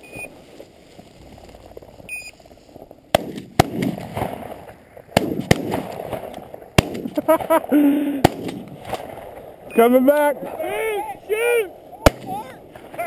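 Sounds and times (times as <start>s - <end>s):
short electronic beeps: 0.0s - 0.3s, 2.1s - 2.4s, 9.7s - 10.0s
shotgun shots: 3.1s - 7.6s, 8.2s - 9.5s, 12.0s - 13.0s.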